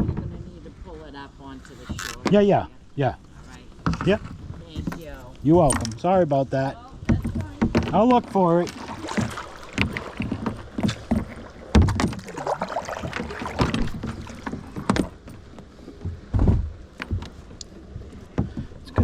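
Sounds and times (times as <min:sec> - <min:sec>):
water splashing: 0:00.0 - 0:15.9
knocks against a kayak: 0:03.8 - 0:06.0, 0:07.0 - 0:15.4, 0:16.0 - 0:17.4, 0:18.2 - 0:19.0.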